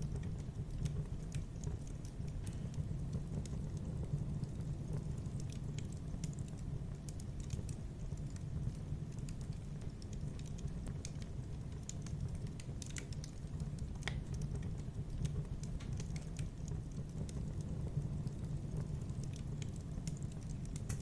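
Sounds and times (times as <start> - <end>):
low rumble of flame: 0.0 - 21.0
wood fire pops and snaps: 0.0 - 21.0.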